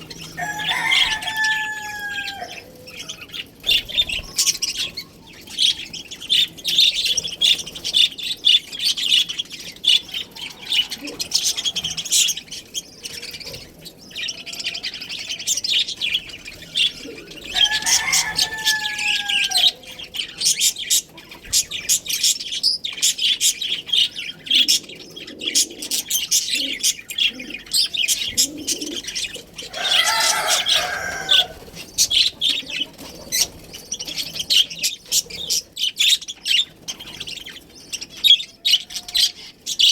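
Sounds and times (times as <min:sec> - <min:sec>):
budgerigars chirping: 0:00.0 - 0:39.9
longer lower bird calls: 0:22.0 - 0:39.9.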